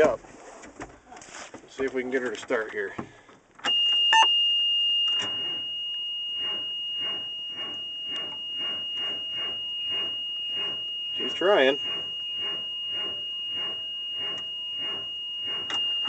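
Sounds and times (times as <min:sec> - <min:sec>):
warning buzzer steady high tone: 0:03.7 - 0:16.0.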